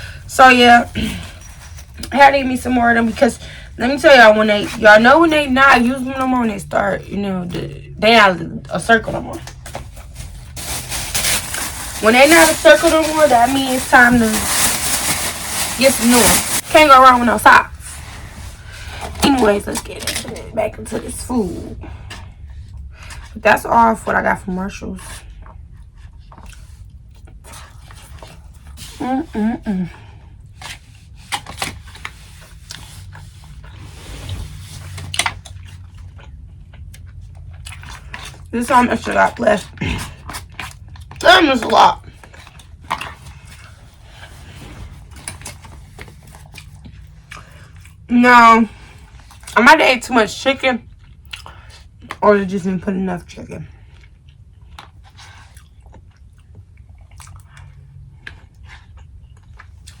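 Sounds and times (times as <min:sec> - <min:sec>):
steady low hum: 0:00.0 - 1:00.0
rustling: 0:09.4 - 0:20.4
person chewing food: 0:25.2 - 0:29.0, 0:29.9 - 0:38.5, 0:39.7 - 0:41.2, 0:42.0 - 0:48.1, 0:48.7 - 0:49.6, 0:50.8 - 0:52.2, 0:53.8 - 1:00.0.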